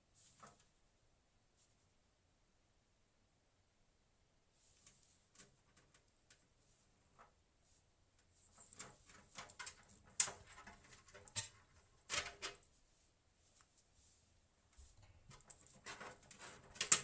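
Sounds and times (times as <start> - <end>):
clicks and rustles of handling: 4.7 - 7.4, 8.2 - 17.0.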